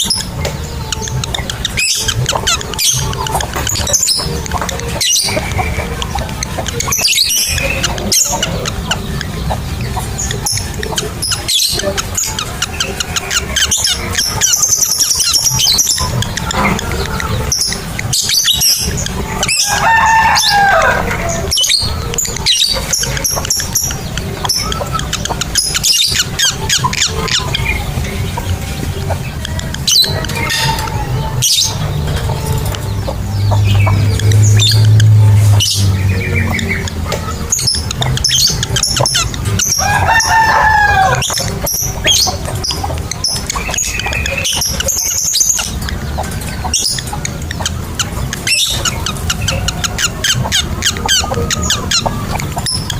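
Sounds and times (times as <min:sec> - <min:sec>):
lovebirds chirping: 0:00.0 - 0:52.9.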